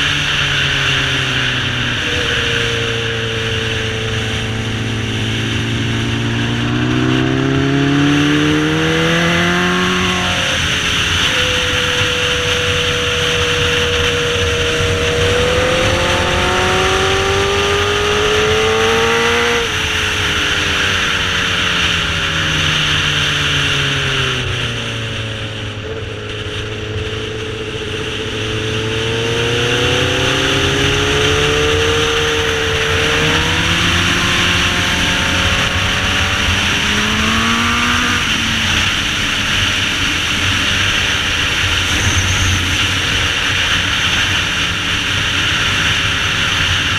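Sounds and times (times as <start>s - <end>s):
motorcycle engine revving: 0.0s - 46.9s
wind rushing: 11.8s - 19.8s.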